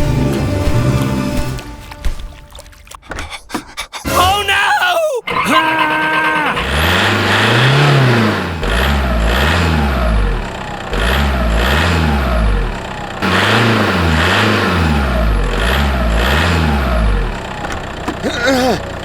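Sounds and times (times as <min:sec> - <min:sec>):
tractor engine revving: 0:05.3 - 0:18.2.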